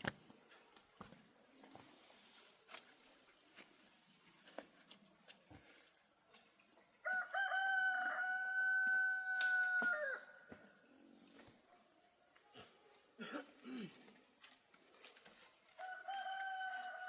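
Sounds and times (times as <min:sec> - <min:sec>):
rooster crowing: 0:07.0 - 0:10.4, 0:15.8 - 0:17.0.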